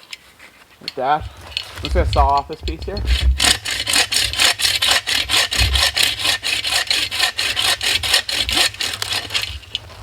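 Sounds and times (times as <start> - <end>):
hand saw cutting branch: 1.8 - 9.8.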